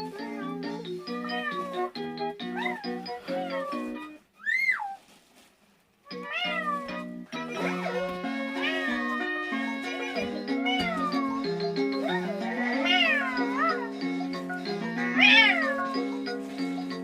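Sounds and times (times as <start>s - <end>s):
background music: 0.0s - 4.2s, 6.1s - 17.0s
cat meowing: 1.1s - 1.9s, 2.6s - 5.0s, 6.1s - 16.0s.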